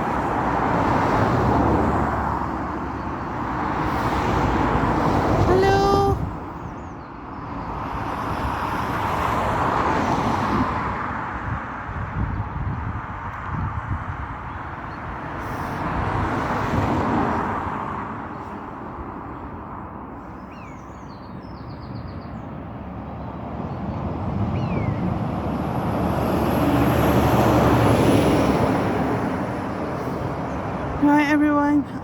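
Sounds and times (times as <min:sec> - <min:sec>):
vehicles passing on road: 0:00.0 - 0:32.0.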